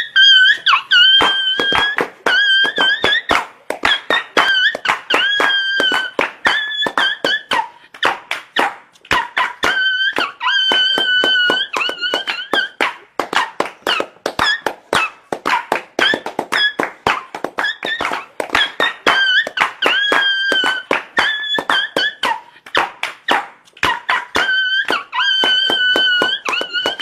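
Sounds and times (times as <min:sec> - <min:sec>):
high-pitched squeaks: 0:00.0 - 0:07.6.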